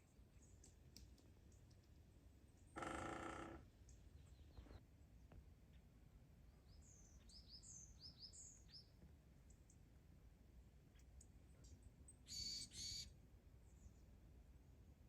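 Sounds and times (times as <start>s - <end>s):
high bird chirps: 12.3s - 13.0s
loud pitched bird call: 12.3s - 13.1s.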